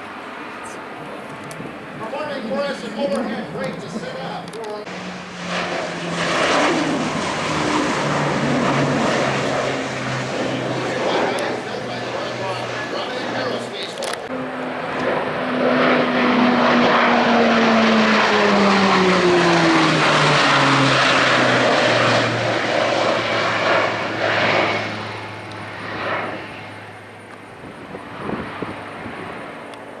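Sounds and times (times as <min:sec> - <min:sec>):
propeller aircraft flying past: 0:00.0 - 0:30.0.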